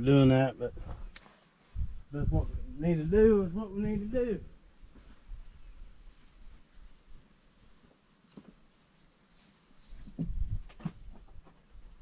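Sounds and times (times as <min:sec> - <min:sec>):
crickets chirping: 0:00.0 - 0:12.0
soft knocks: 0:10.0 - 0:11.6.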